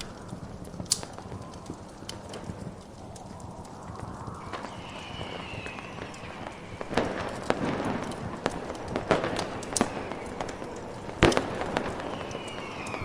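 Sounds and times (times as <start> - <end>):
fireworks popping: 0.0 - 13.0
steady hiss: 0.0 - 13.0
faint falling whistle: 3.2 - 8.3, 9.4 - 13.0.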